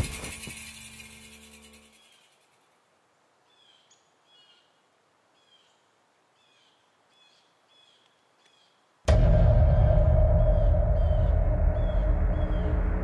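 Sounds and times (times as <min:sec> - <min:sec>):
faint bird chirps: 0:00.1 - 0:02.8, 0:03.4 - 0:08.9, 0:10.4 - 0:13.0
deep music drone: 0:09.1 - 0:13.0.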